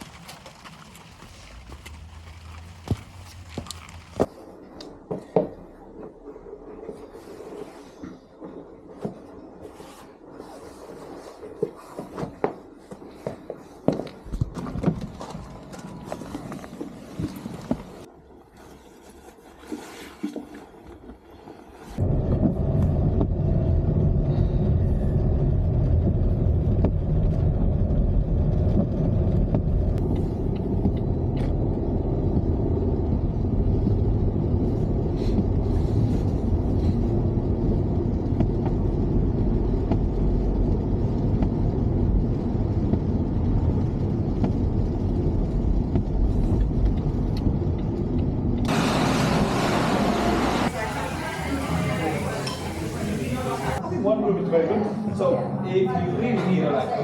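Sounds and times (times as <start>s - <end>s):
car road and engine rumble: 0.0s - 4.4s, 14.2s - 18.1s, 22.0s - 53.8s.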